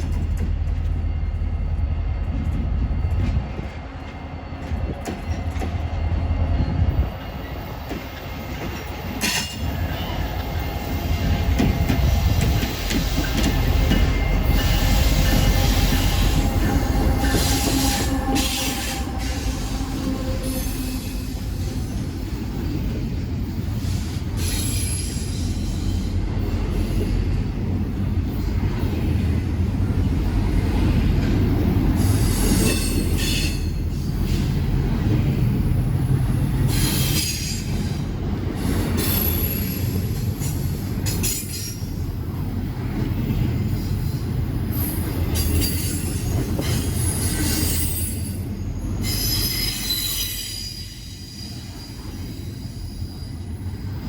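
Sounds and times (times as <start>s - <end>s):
freight train rumbling past: 0.0s - 54.0s
wheel squeal on rails: 13.8s - 21.9s, 44.8s - 53.4s.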